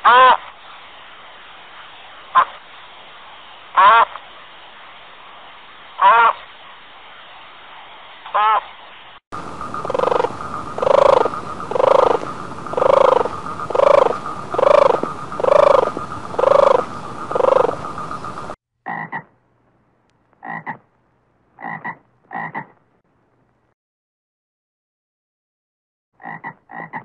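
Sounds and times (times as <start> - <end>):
steady background drone: 9.4 - 18.6
frog croaking: 9.4 - 19.3, 20.4 - 20.9, 21.6 - 22.8, 26.2 - 27.0.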